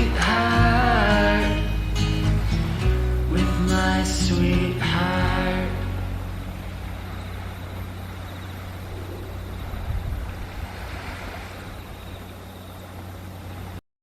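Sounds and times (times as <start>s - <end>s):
low hum: 0.0s - 13.8s
outdoor background rush: 0.0s - 13.8s.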